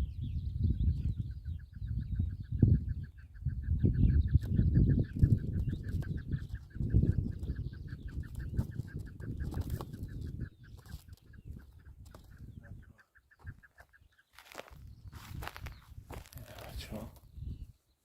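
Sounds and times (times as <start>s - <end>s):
partridge clucking call: 5.2s - 14.6s.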